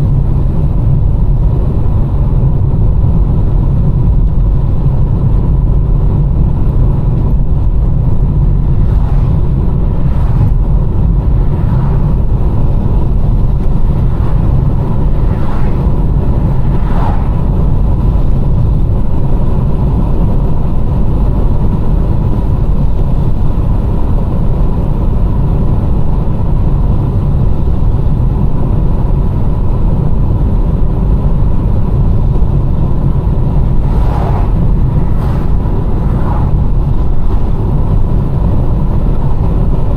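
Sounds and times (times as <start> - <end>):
engine and tyre rumble: 0.0 - 39.9
faint swishes: 8.6 - 17.8, 33.6 - 37.6.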